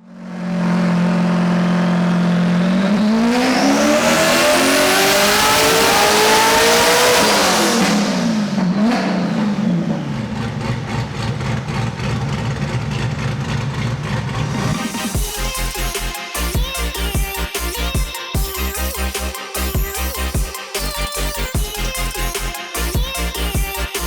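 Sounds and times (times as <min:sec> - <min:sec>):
high whine: 0:00.0 - 0:08.9, 0:14.4 - 0:24.0
performance car engine revving: 0:00.0 - 0:16.5
music with a steady beat: 0:14.6 - 0:24.0.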